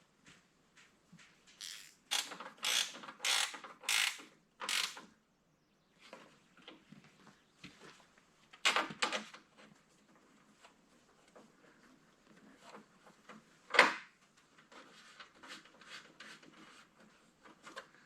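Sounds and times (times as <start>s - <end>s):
socket ratchet strokes: 1.6s - 5.0s.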